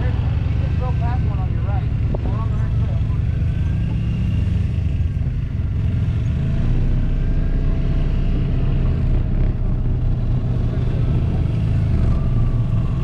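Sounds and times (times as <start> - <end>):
engine low rumble: 0.0 - 13.0.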